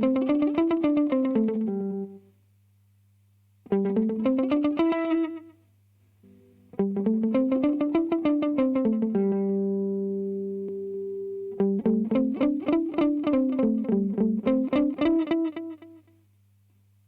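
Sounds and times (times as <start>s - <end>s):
electric guitar notes: 0.0s - 2.2s, 3.7s - 5.6s, 6.2s - 16.0s
faint hum: 0.0s - 17.0s.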